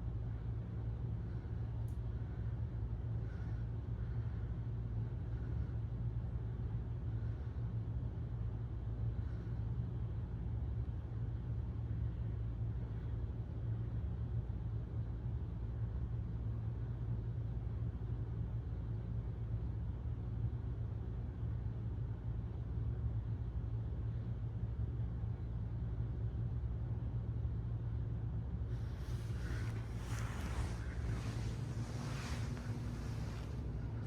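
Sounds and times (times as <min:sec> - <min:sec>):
ceiling fan humming: 0:28.5 - 0:34.0
rush of moving air: 0:28.7 - 0:34.0.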